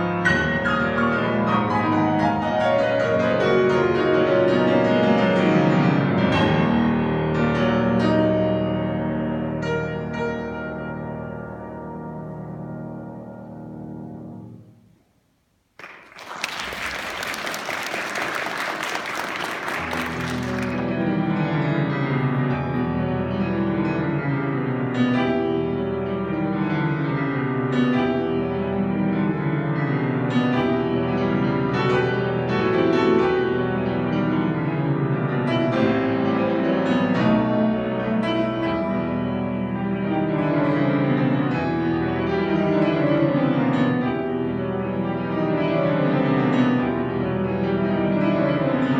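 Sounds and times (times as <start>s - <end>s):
solo classical piano: 0.0s - 15.0s, 19.6s - 48.9s
audience applause: 15.8s - 21.0s.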